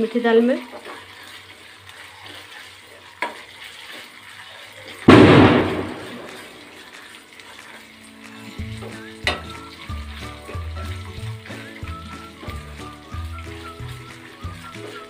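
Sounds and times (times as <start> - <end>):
onions frying in oil: 0.0 - 15.0
sudden burst of sizzling: 5.0 - 7.0
metal spoon knocking pan: 9.2 - 9.6.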